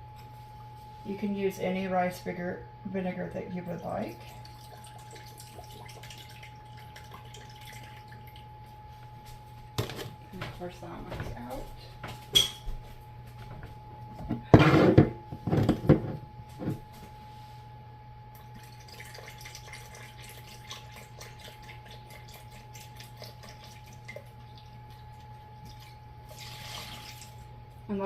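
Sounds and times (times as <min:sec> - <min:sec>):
liquid trickling into cup: 0:04.2 - 0:08.5, 0:18.4 - 0:27.5.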